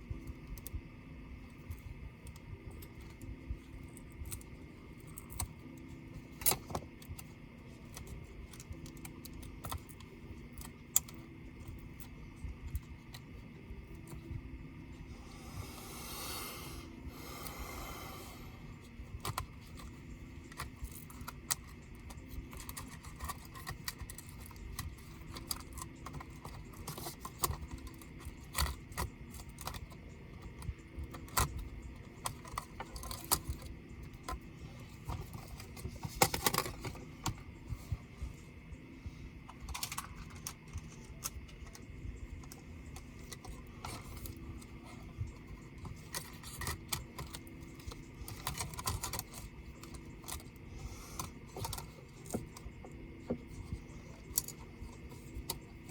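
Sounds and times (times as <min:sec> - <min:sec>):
tools and parts rattling: 0:19.1 - 0:37.9, 0:39.4 - 0:55.9.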